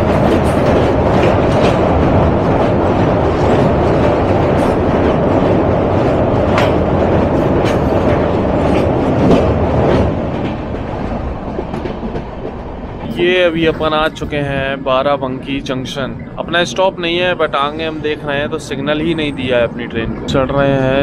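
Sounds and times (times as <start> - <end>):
rail-joint clicks: 0.0 - 18.0
train wheels rumbling on track: 0.0 - 21.0.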